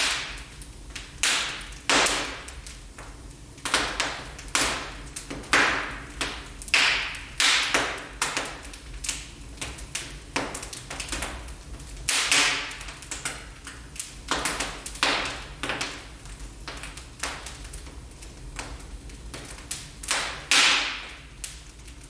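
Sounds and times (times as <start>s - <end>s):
low rumble of flames: 0.0s - 22.0s
wood fire crackling and popping: 0.0s - 22.0s.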